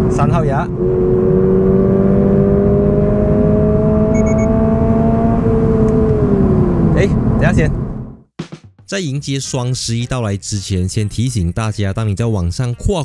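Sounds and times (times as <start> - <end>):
car engine accelerating: 0.0 - 8.3
short faint beeps: 4.1 - 4.5.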